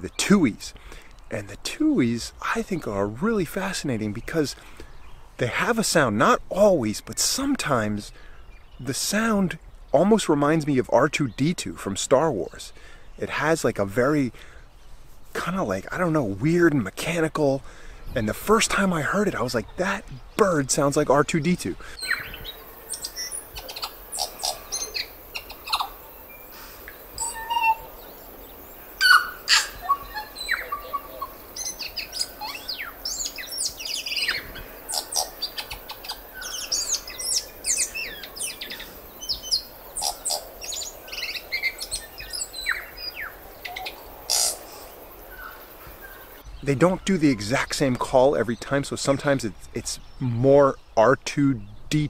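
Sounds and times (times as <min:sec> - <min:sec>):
bird singing whistled notes: 0:21.9 - 0:44.6.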